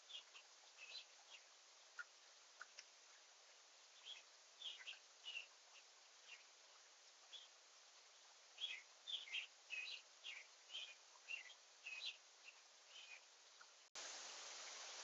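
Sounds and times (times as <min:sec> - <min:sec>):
small songbird chirping: 0:00.0 - 0:13.9
steady hiss: 0:00.0 - 0:15.0.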